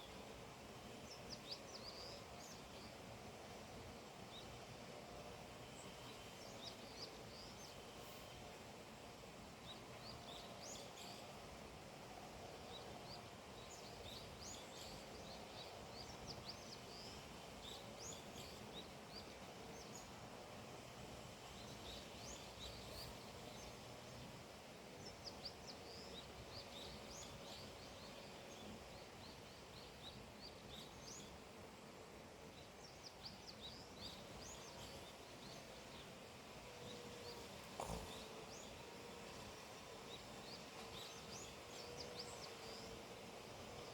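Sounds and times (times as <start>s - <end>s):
low outdoor hum: 0.0s - 43.9s
small birds chirping: 12.4s - 31.8s, 32.5s - 43.9s.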